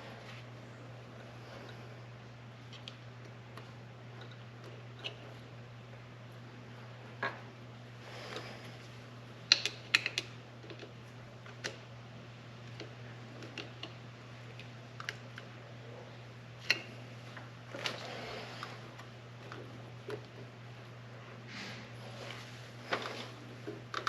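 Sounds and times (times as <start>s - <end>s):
steady low hum: 0.0s - 24.0s
clicks of small metal parts: 9.5s - 10.9s.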